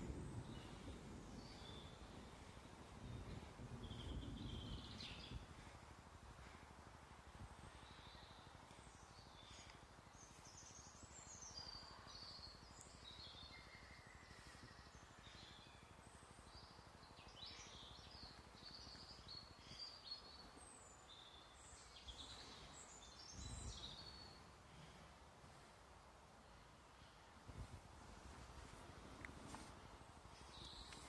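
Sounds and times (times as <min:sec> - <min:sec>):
birds chirping: 0:00.0 - 0:06.6, 0:07.3 - 0:24.5, 0:30.3 - 0:31.0
soft background hiss: 0:00.0 - 0:31.0.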